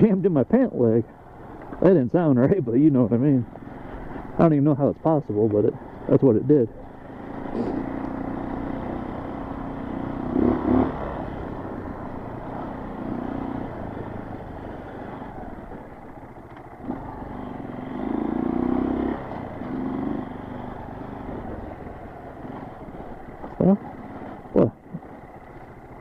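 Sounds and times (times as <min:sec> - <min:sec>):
dirt bike engine revving: 0:06.0 - 0:16.2, 0:16.8 - 0:25.3.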